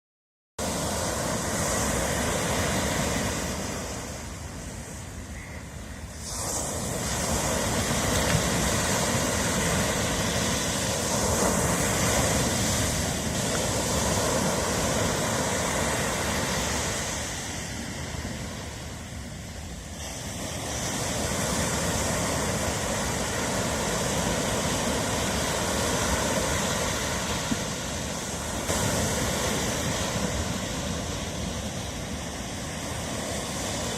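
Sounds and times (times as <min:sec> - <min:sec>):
ocean waves on shore: 0:00.6 - 0:33.9.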